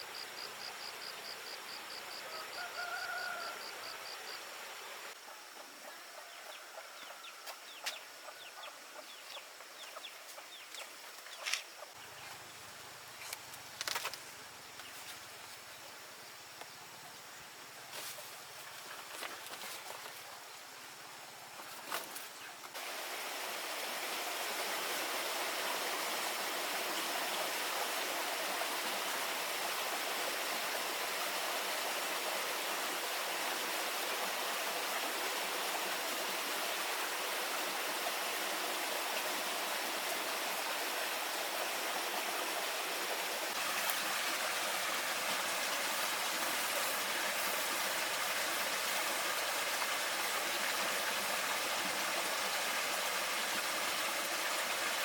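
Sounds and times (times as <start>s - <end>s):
rushing water-like noise: 0.0s - 5.2s, 22.7s - 55.0s.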